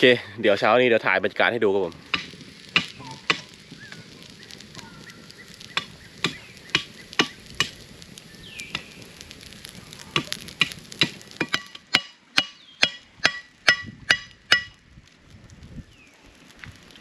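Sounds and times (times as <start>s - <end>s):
faint steady hiss: 0.0s - 17.0s
sharp clicks and knocks: 10.2s - 14.8s.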